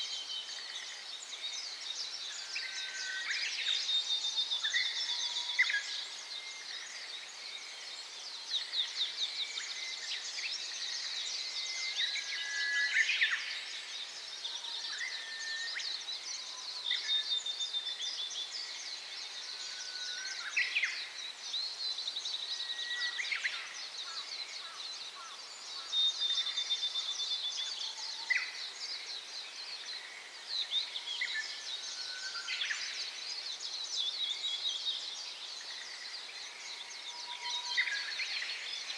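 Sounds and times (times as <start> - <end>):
small songbirds chirping: 0.0 - 38.9.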